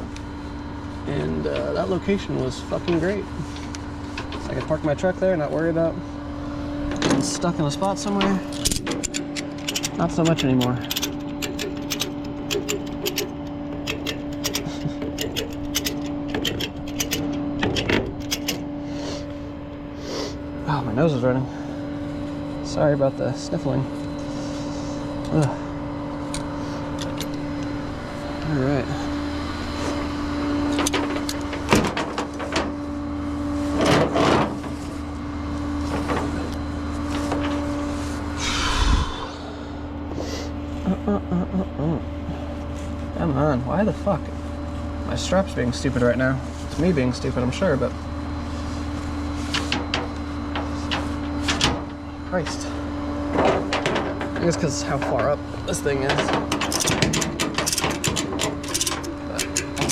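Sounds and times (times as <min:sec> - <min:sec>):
machine hum: 0:00.0 - 0:59.9
truck engine idling: 0:06.0 - 0:20.6
rattling noise: 0:06.9 - 0:18.7, 0:53.3 - 0:59.9
rapid ratchet clicking: 0:08.5 - 0:18.7, 0:56.5 - 0:59.9.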